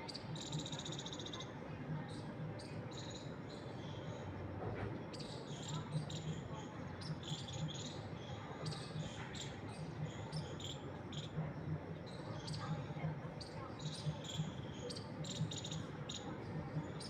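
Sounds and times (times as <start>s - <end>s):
small birds chirping: 0.0s - 4.3s, 5.1s - 17.0s.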